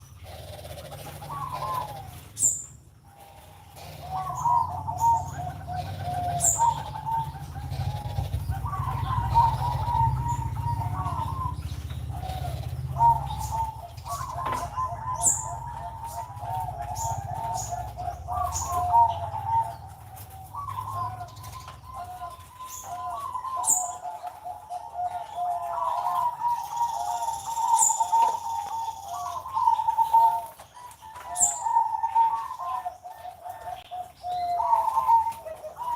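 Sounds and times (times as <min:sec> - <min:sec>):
small bird chirping: 0:00.0 - 0:32.9
doves cooing: 0:00.0 - 0:35.9.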